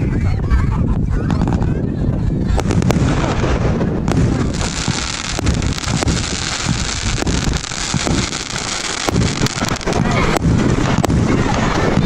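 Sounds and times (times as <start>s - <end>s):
low rumble: 0.0s - 12.0s
firework bangs: 2.5s - 12.0s
firework crackle: 2.5s - 12.0s.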